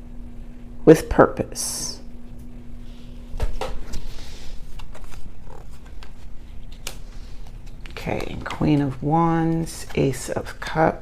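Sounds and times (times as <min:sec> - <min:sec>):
cards clicking and rustling: 0:04.8 - 0:10.2.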